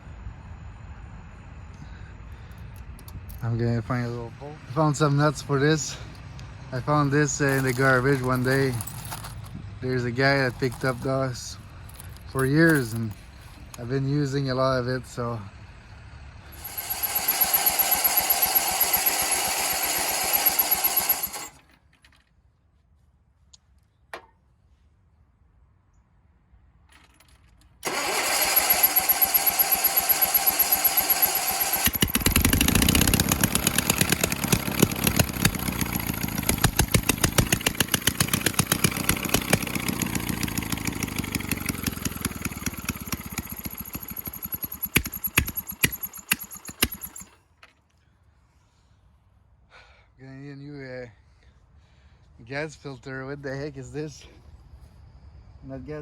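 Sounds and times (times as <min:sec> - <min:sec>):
small engine running: 0:05.3 - 0:14.0, 0:15.0 - 0:21.7, 0:27.8 - 0:47.4
starter motor cranking: 0:16.5 - 0:21.7, 0:27.8 - 0:47.4.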